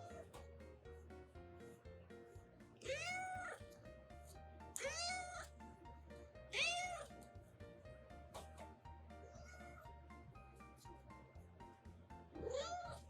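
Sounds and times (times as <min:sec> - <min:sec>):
kitten meowing: 0:02.8 - 0:03.6, 0:04.8 - 0:05.5, 0:06.5 - 0:07.1, 0:09.2 - 0:09.9, 0:12.4 - 0:13.0.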